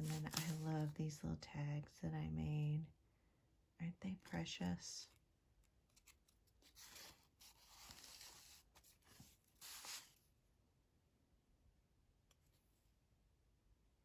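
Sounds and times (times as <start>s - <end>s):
paper rustling and flipping: 0.0s - 1.0s, 5.6s - 10.2s.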